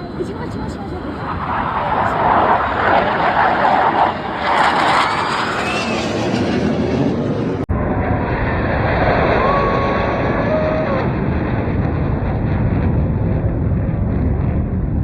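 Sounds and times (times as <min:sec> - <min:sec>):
wind buffeting microphone: 0:00.0 - 0:05.6
jet aircraft rumble: 0:00.0 - 0:15.0.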